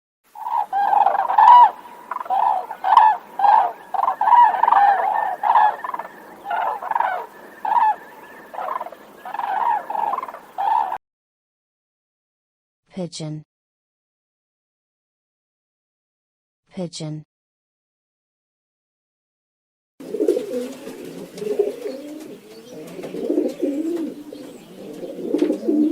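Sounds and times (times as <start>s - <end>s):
crane bugling calls: 0.3s - 11.0s, 20.3s - 25.9s.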